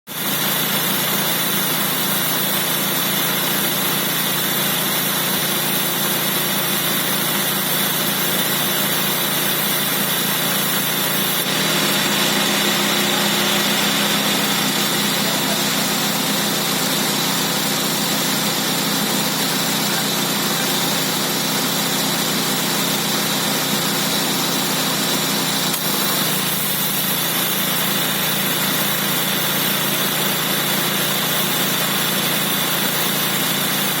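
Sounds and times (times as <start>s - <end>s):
compressor rattling: 0.1s - 34.0s
car engine running: 7.0s - 32.9s.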